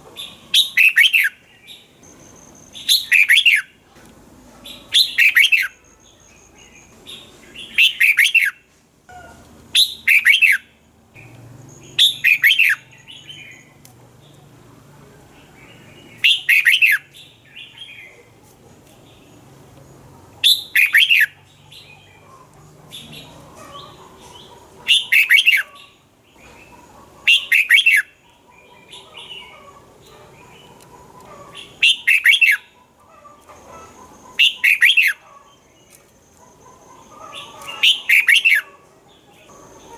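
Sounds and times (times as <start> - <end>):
soft bird chattering: 20.4 - 38.8.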